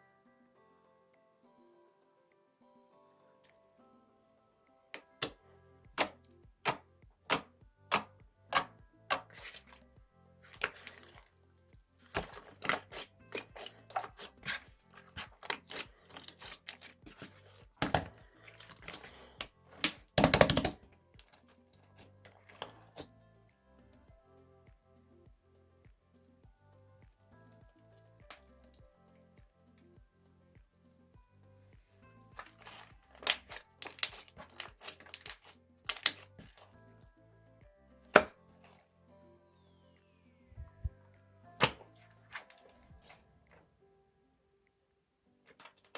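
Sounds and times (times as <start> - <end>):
slime popping in plastic bag: 6.0 - 9.8, 12.1 - 21.4, 32.4 - 36.6.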